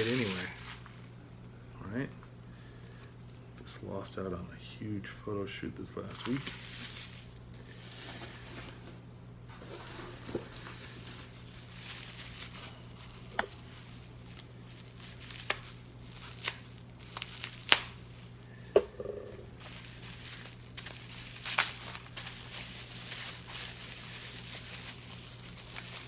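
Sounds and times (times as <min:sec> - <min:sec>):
packaging crinkling and rustling: 0:00.0 - 0:01.2, 0:06.1 - 0:18.7, 0:19.3 - 0:26.0.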